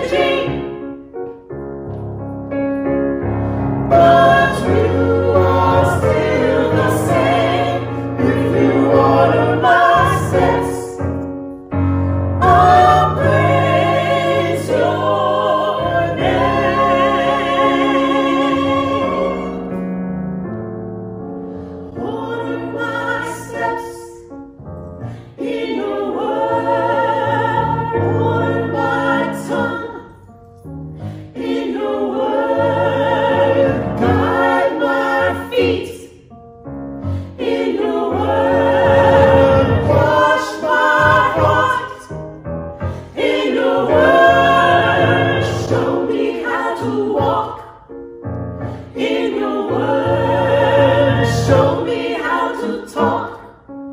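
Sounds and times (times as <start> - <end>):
choir singing a hymn: 0.0 - 1.2, 3.2 - 20.0, 21.5 - 24.4, 25.1 - 30.3, 31.0 - 36.3, 37.0 - 47.9, 48.7 - 53.7.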